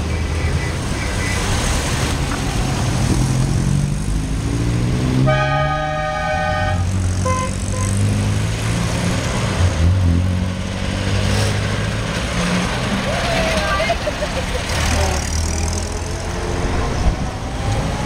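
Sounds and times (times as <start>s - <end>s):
vehicle engines running: 0.0s - 18.0s
car horn: 5.2s - 8.1s.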